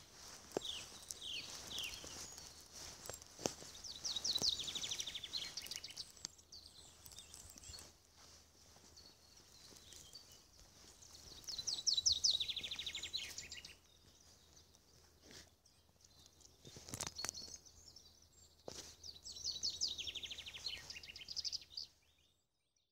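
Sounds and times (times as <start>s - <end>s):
songbird trilling: 3.7s - 7.9s, 8.8s - 14.4s, 19.3s - 21.9s.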